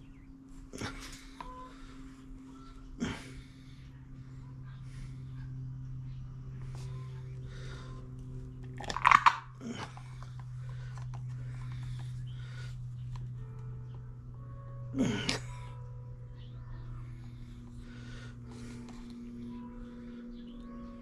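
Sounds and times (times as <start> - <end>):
steady low hum: 0.0 - 21.0
crinkling handling noise: 8.5 - 13.6.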